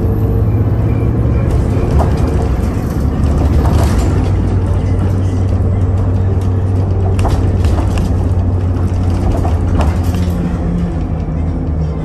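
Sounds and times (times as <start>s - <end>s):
train running low hum: 0.0s - 12.0s.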